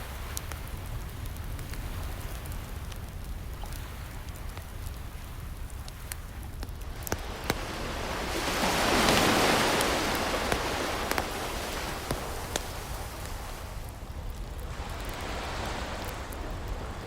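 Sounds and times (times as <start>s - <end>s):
surf rumble: 0.0s - 17.0s
wood fire crackling: 0.0s - 17.0s
ocean wave washing in: 7.1s - 14.0s, 14.6s - 17.0s.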